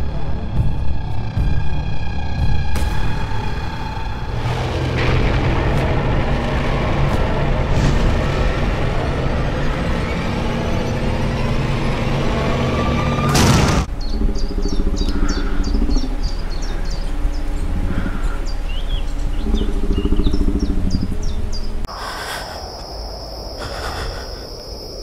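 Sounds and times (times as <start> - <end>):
low rattling buzz: 0.0 - 21.9
birds chirping: 13.8 - 25.0.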